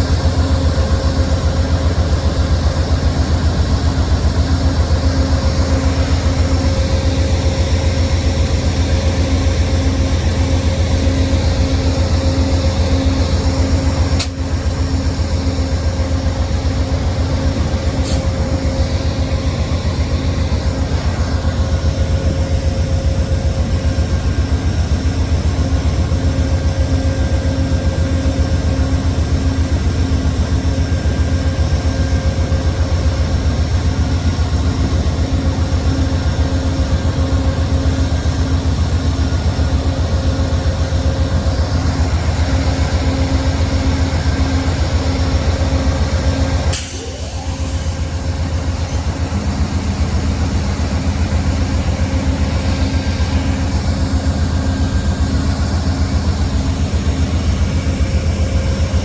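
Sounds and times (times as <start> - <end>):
diesel train rumbling: 0.0 - 59.0
sharp click: 14.2 - 14.4.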